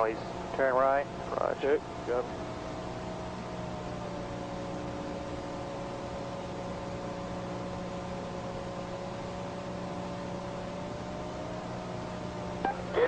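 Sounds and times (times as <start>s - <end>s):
intercom hiss and hum: 0.0s - 7.4s, 12.2s - 13.0s
aircraft engine drone: 0.0s - 13.0s.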